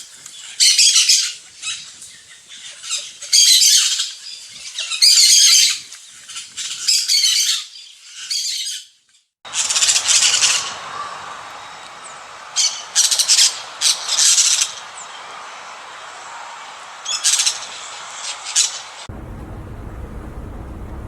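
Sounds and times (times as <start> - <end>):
cage birds chirping: 9.5 - 21.0
steady hiss: 9.5 - 21.0.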